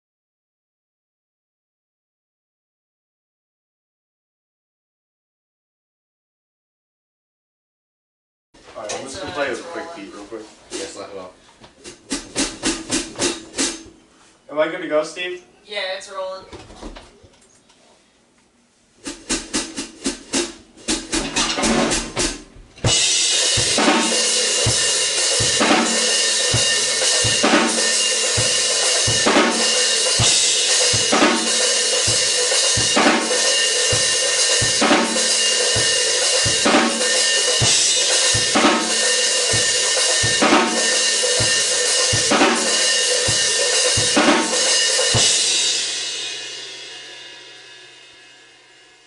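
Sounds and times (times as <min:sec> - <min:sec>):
drum kit playing steady beat: 0:10.6 - 0:14.0, 0:19.0 - 0:48.2
cymbals ringing: 0:22.8 - 0:47.7.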